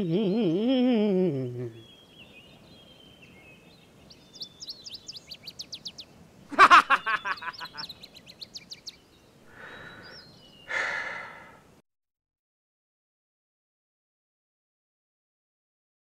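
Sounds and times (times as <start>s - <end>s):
songbirds chirping: 0.0s - 11.8s
breathy rushing sounds: 9.5s - 11.8s.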